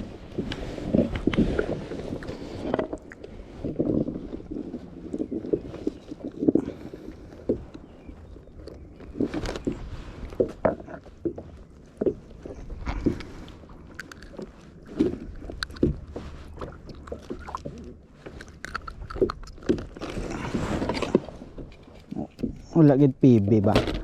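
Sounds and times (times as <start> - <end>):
low rumble of wind or water: 0.0 - 24.0.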